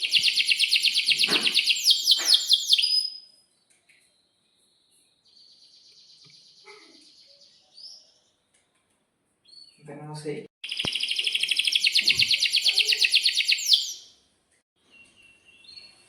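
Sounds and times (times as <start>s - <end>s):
canary singing: 0.0s - 3.3s, 10.6s - 14.2s.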